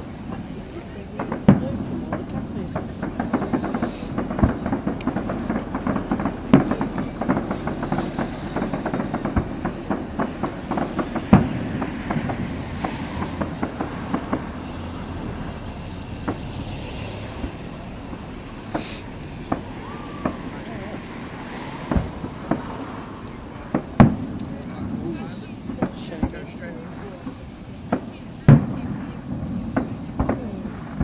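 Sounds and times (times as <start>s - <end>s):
fireworks crackling and banging: 0.0s - 31.0s.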